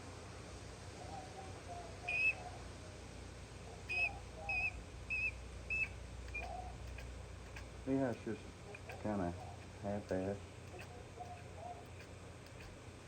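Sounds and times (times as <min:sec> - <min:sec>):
rubber primer bulb squeaking: 0:03.9 - 0:09.8.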